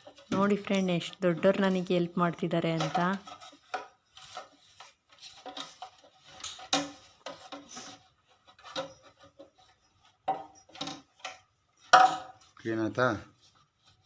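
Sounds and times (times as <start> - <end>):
cloth wiping plastic: 12.4 - 14.0.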